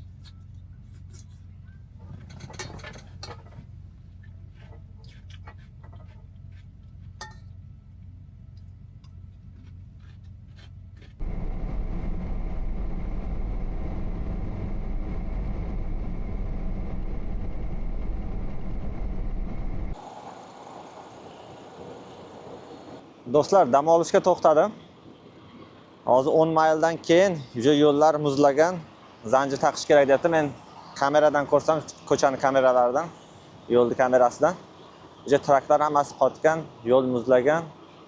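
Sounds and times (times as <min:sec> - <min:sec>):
truck cab low hum: 0:00.0 - 0:20.0
truck rumbling on road: 0:00.0 - 0:23.2.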